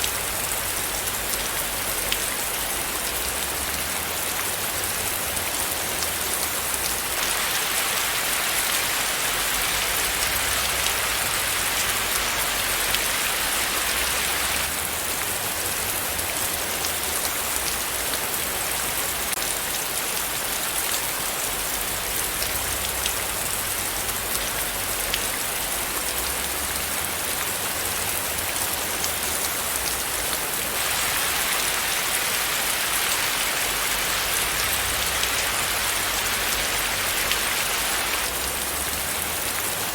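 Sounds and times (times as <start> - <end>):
rain hissing: 0.0 - 15.6, 29.2 - 39.9.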